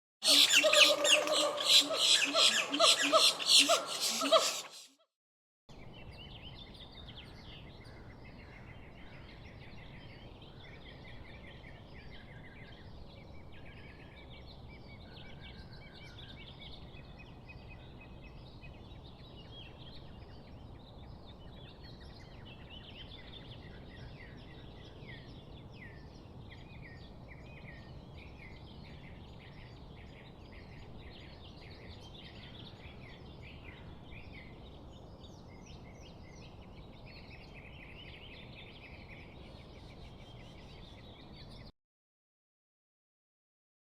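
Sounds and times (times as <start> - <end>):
small birds chirping: 0.2 - 4.9.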